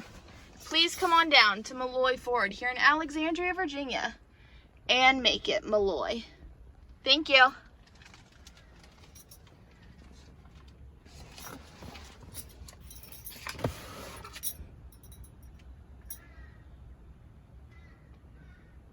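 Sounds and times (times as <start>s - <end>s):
faint outdoor rumble: 0.0s - 18.9s
light clicks and rattles: 7.6s - 13.7s.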